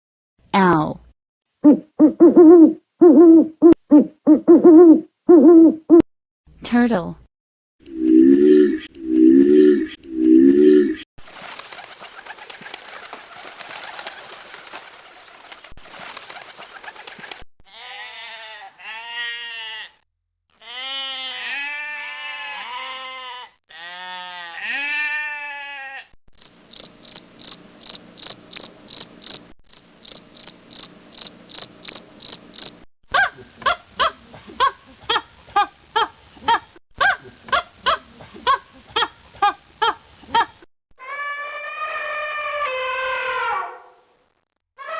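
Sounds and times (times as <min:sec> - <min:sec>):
fast clicking chirps: 0:26.4 - 0:32.8
high chirps: 0:26.4 - 0:32.8.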